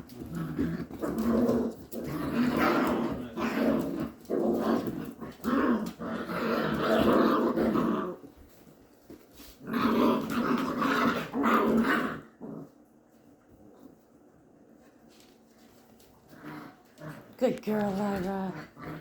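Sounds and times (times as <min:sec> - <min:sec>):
dogs growling in rough play: 0:00.0 - 0:08.8, 0:09.4 - 0:12.9, 0:16.0 - 0:19.0.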